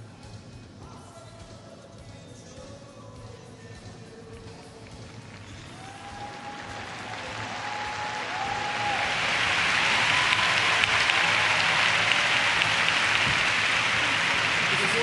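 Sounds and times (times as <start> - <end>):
crowd applause: 5.2 - 15.0.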